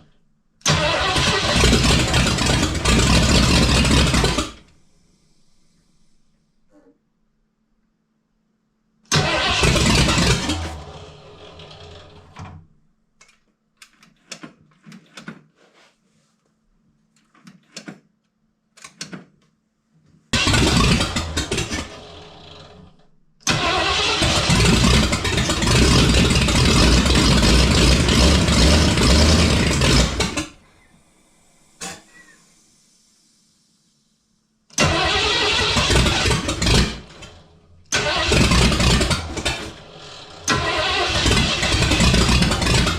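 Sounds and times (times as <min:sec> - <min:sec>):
engine cranking on starter: 0:00.6 - 0:04.7, 0:09.1 - 0:12.6, 0:20.4 - 0:30.7, 0:34.8 - 0:42.9.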